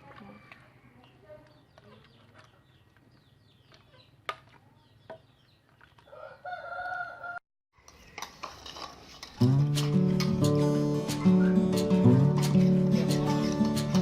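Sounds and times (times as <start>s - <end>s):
rooster crowing: 6.1s - 7.4s
music: 9.4s - 14.0s.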